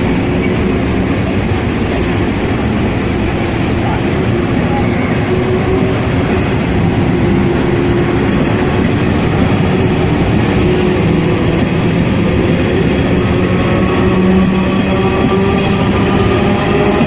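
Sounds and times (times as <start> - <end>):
train running past: 0.0 - 17.0.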